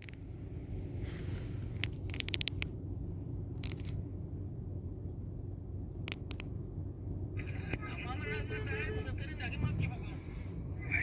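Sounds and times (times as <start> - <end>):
car engine rumbling: 0.0 - 11.0
sharp clicks: 1.8 - 2.8, 3.6 - 4.0, 6.0 - 6.6.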